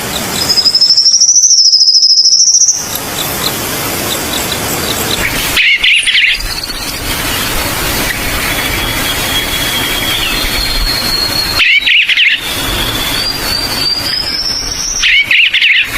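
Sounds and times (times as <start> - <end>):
forest birds calling: 0.0 - 15.9
high steady bird trill: 0.0 - 15.9
rapid bird chirping: 0.0 - 15.9
steady rushing background: 2.6 - 15.2.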